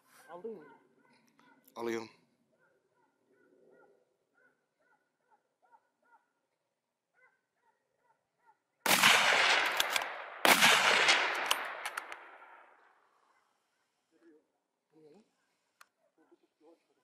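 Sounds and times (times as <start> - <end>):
gunshots with rolling echo: 8.8 - 13.1.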